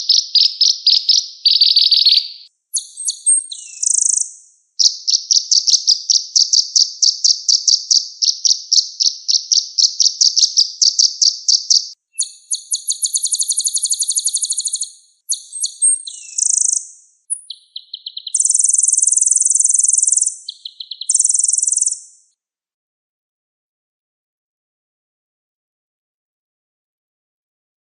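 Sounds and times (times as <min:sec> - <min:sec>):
bird singing rapid trills: 0:00.0 - 0:22.3.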